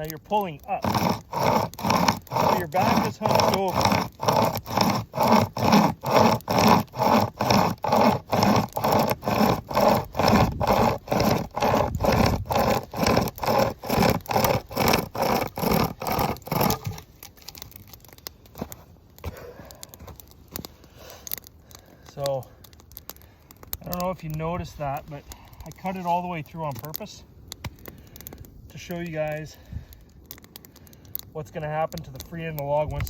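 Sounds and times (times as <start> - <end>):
hand chainsaw rasping through log: 0.0 - 20.3, 22.1 - 27.1.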